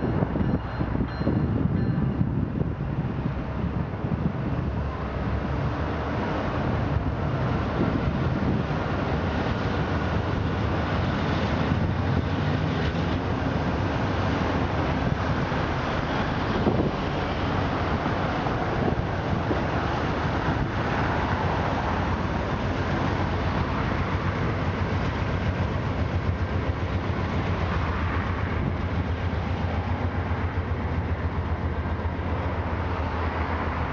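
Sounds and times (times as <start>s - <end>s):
freight train wheels rumbling on rails: 0.0s - 33.9s.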